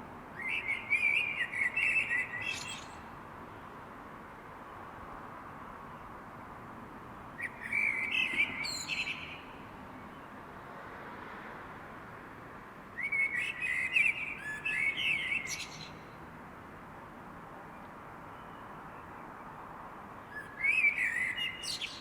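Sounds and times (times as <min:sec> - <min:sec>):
steady background hiss: 0:00.0 - 0:22.0
songbird singing: 0:00.3 - 0:03.2, 0:07.4 - 0:10.5, 0:13.0 - 0:16.2, 0:17.7 - 0:19.6, 0:20.2 - 0:22.0.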